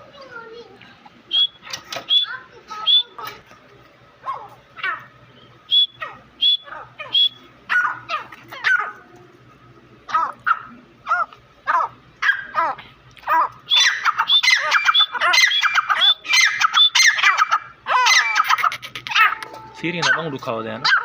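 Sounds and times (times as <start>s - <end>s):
francolins calling: 1.3s - 3.4s, 4.2s - 9.1s, 10.0s - 21.0s.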